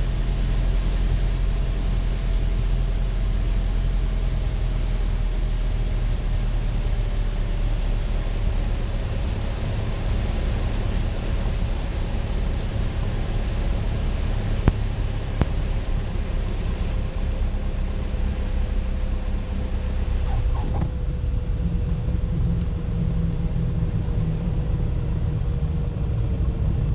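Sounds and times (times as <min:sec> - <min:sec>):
aircraft cabin engine drone: 0:00.0 - 0:26.9
faint tone sinking in pitch: 0:20.0 - 0:20.9.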